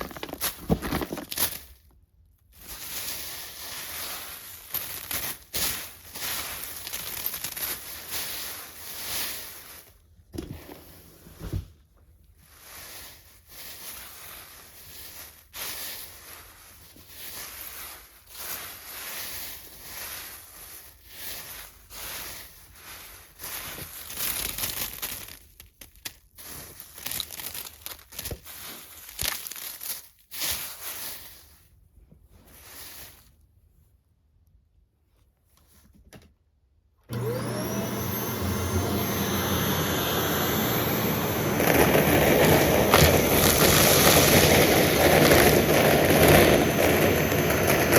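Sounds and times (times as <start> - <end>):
dry crinkling and crackling: 0.0 - 10.0, 12.6 - 31.6.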